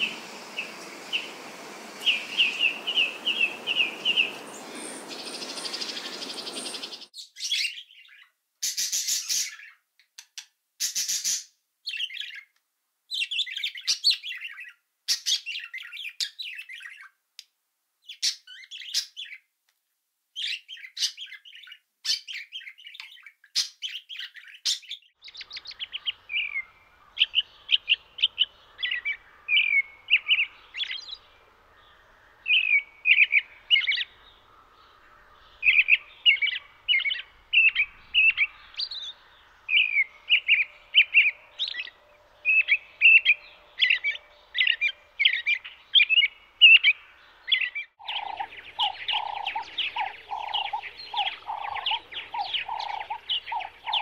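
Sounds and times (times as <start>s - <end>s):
lower bird notes: 0.0s - 7.1s, 25.2s - 54.0s
small birds chirping: 0.0s - 19.5s, 20.3s - 54.0s.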